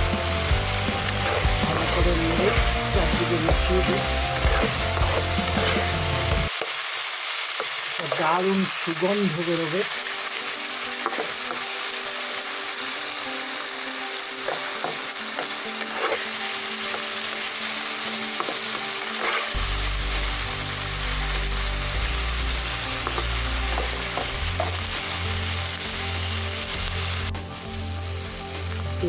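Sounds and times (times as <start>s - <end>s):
vegetables sizzling in hot oil: 0.0s - 29.0s
spatula scraping and tapping pan: 3.4s - 5.9s, 11.0s - 11.6s, 14.5s - 16.3s, 18.4s - 19.6s.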